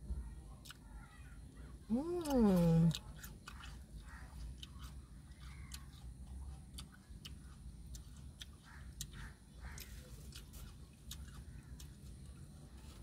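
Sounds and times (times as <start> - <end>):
person chewing food: 1.9 - 13.0.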